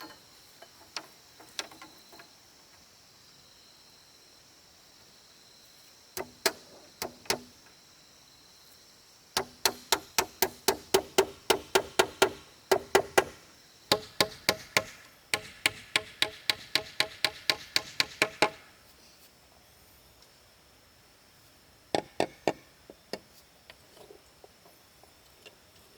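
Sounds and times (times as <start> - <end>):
hammer driving nails into wood: 6.2 - 7.5, 9.4 - 18.7.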